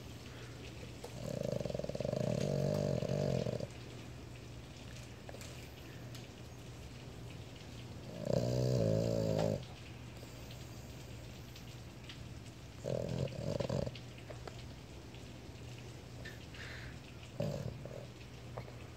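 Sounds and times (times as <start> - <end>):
dog snoring: 1.0 - 3.8, 8.1 - 9.7, 12.8 - 14.0, 17.4 - 18.1.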